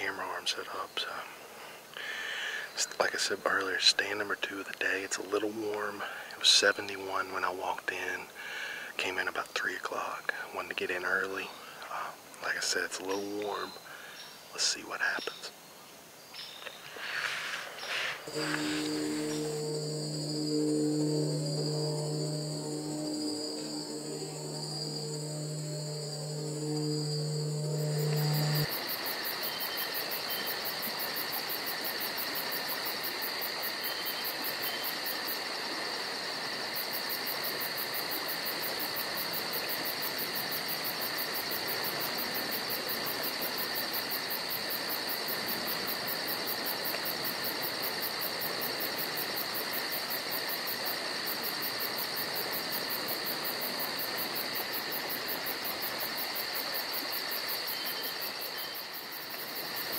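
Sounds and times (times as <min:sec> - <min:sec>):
crickets and insects trilling: 0:17.1 - 0:59.9.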